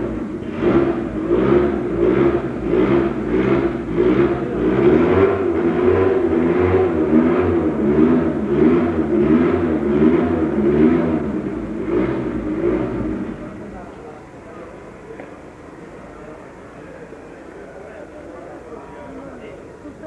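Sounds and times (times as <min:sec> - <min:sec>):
racing car engine revving: 0:00.0 - 0:13.8.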